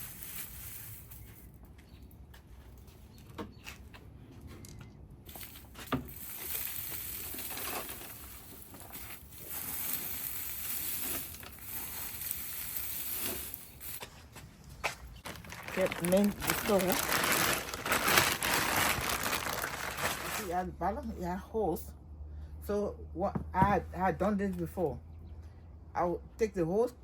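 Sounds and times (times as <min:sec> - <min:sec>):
rustling and scraping of soil: 0:00.0 - 0:21.5.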